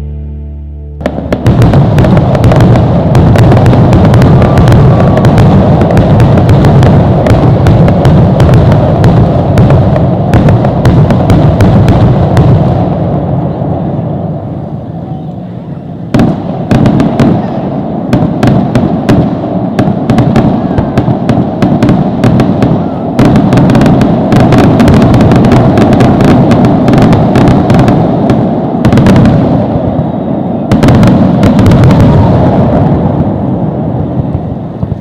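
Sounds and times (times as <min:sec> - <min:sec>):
rumble of shell bursts: 0:01.0 - 0:13.3
fireworks cracking and banging: 0:01.0 - 0:35.0.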